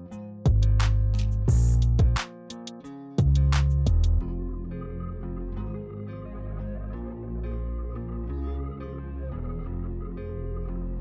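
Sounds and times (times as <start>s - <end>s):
music with heavy bass and beat: 0.0s - 4.2s.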